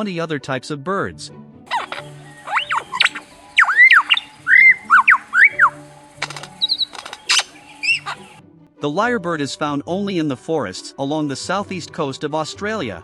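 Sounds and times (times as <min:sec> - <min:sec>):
background music: 0:00.0 - 0:13.0
lyrebird whistled song: 0:01.7 - 0:08.4.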